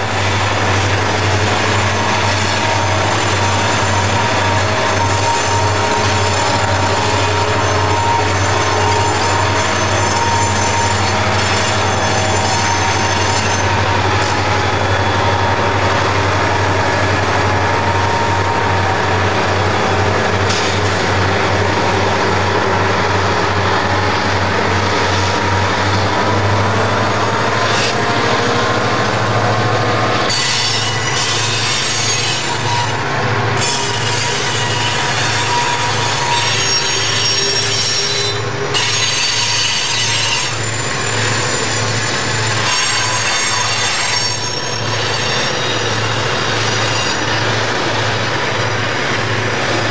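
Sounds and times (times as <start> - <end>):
high engine whine: 0.0 - 36.5
diesel locomotive engines droning: 0.0 - 49.9
wheel squeal: 0.8 - 15.9, 30.2 - 48.7.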